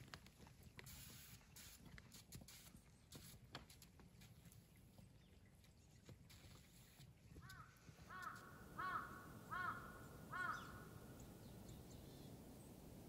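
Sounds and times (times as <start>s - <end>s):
bird calling: 7.4s - 13.0s.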